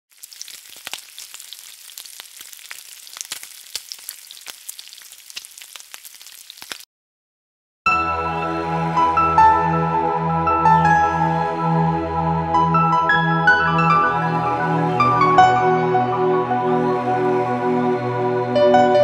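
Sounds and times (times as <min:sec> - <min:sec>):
food sizzling in hot oil: 0:00.1 - 0:06.9
music: 0:07.9 - 0:19.0.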